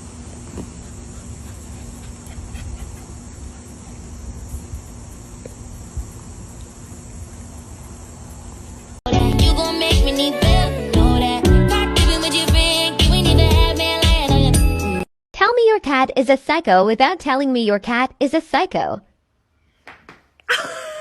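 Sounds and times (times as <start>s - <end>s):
faint low hum: 0.0s - 9.0s
insects trilling: 0.0s - 9.0s
pop music with singing: 9.1s - 15.0s.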